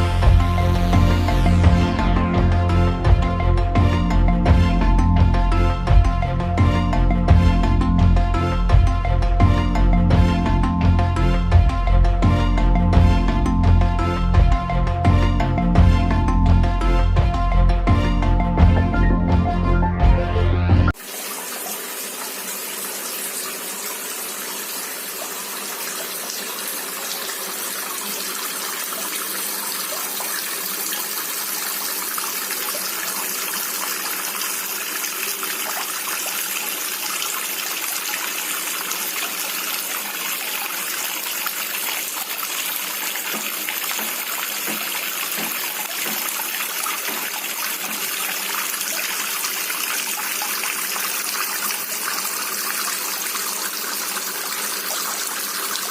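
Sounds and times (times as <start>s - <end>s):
water splashing into basin: 21.0s - 55.9s.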